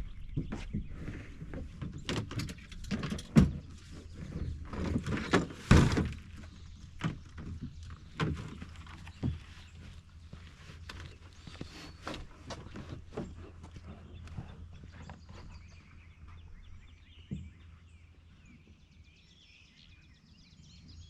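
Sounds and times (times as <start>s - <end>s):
gear knocks and clunks: 1.6s - 9.5s.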